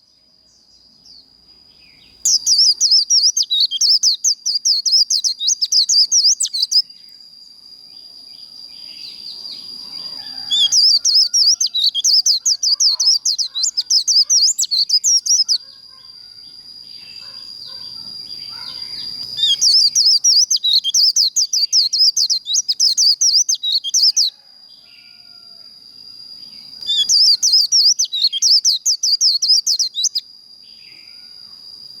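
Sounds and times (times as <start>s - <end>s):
bird chattering song: 0.6s - 7.0s, 8.8s - 16.1s, 17.0s - 24.3s, 26.6s - 30.2s.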